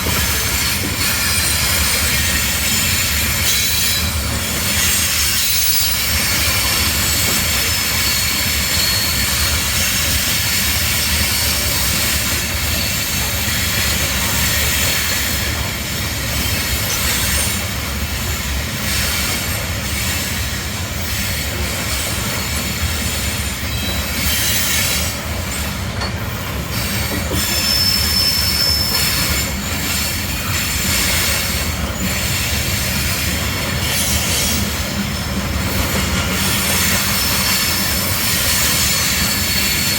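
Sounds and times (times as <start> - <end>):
train wheels rumbling on rail: 0.0 - 39.9
high-pitched wheel squeals: 7.0 - 10.1, 26.9 - 31.4.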